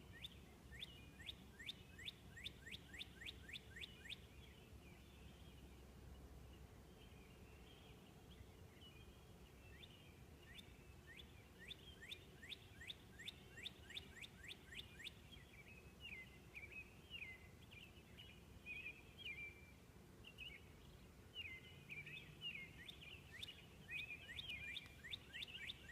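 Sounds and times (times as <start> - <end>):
bird singing whistled notes: 0.0 - 5.6, 6.9 - 25.9.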